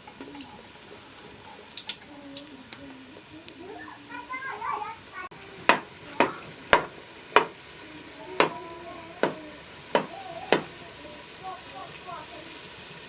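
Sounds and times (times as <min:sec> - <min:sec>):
sharp knocks: 0:05.7 - 0:07.6, 0:09.2 - 0:09.4, 0:10.0 - 0:10.7.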